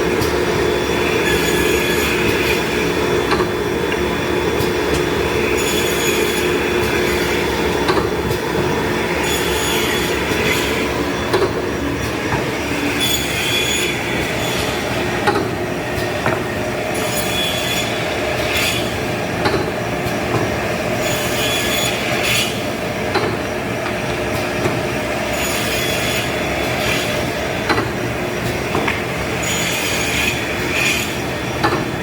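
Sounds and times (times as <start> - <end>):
timber saw running with a hum: 0.0 - 23.0, 23.6 - 32.0
saw blade squealing whine: 1.1 - 2.7
sharp clicks and knocks: 7.8 - 8.7, 11.3 - 12.5, 15.2 - 17.1, 19.4 - 20.6, 23.1 - 24.8, 27.6 - 29.1, 31.6 - 31.9.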